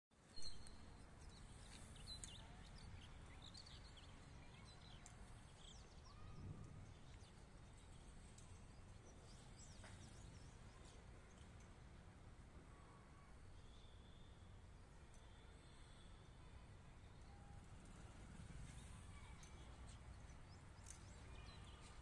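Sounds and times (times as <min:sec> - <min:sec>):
small birds chirping: 0:00.2 - 0:11.7, 0:18.4 - 0:22.0.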